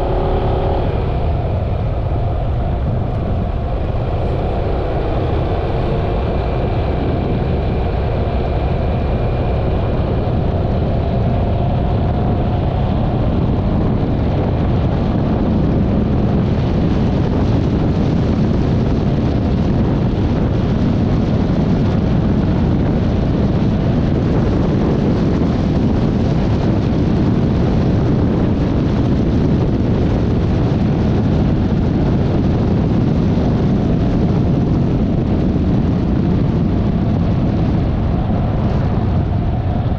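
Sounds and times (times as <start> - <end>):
faint whine: 0.0 - 18.2
wind and road noise: 0.0 - 39.9.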